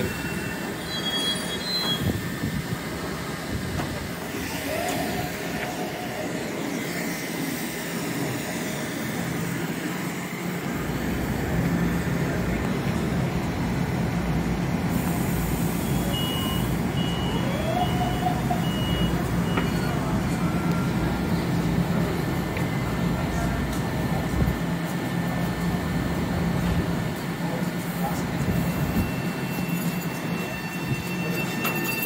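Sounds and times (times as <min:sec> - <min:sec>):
train equipment humming: 0:00.0 - 0:32.0
short high beeps: 0:15.8 - 0:17.5.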